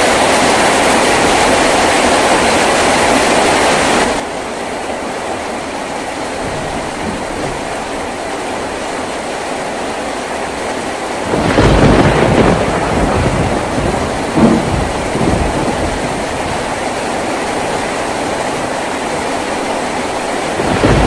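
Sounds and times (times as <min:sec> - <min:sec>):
rain on a tin roof: 0:00.0 - 0:21.0
thunder rumbling: 0:06.0 - 0:09.3, 0:11.2 - 0:21.0.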